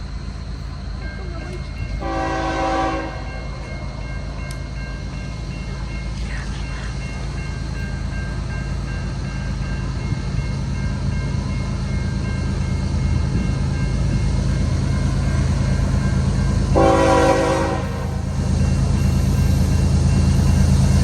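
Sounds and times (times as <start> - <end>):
freight train rumbling: 0.0 - 21.0
locomotive air horn blast: 2.0 - 3.4, 16.8 - 18.3.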